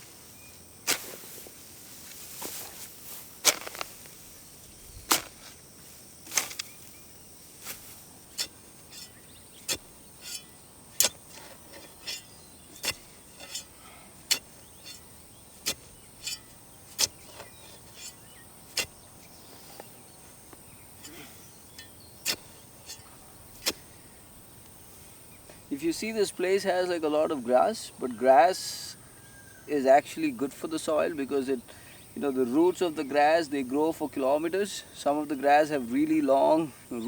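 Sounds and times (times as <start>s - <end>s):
hand tool striking ground: 0.8s - 1.3s, 3.4s - 4.1s, 5.0s - 5.6s, 6.2s - 6.8s, 7.6s - 19.9s, 20.5s - 24.1s.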